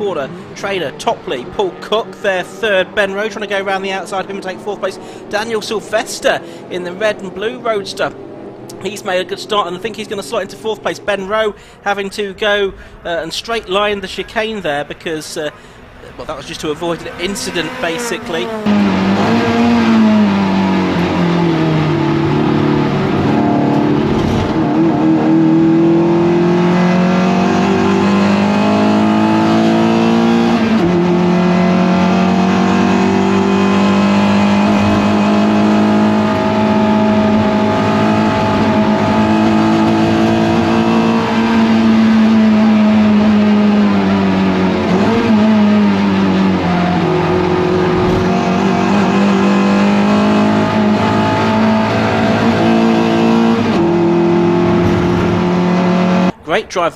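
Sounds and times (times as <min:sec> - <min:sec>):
race car engine running hard: 0:16.0 - 0:56.4.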